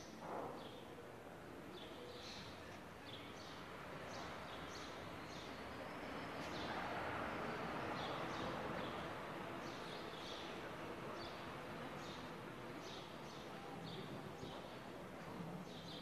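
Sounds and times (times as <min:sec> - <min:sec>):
street background noise: 0:00.0 - 0:16.0.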